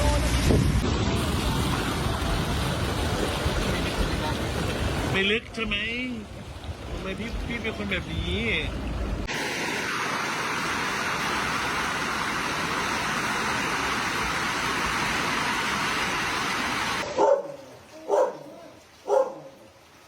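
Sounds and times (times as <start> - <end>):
steady rushing noise: 6.7 - 17.0
dog barking: 17.0 - 19.6.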